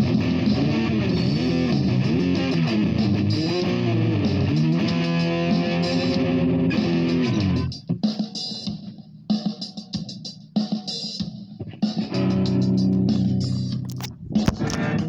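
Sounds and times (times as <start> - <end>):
guitar with bending sliding notes: 0.0 - 7.8, 12.1 - 15.0.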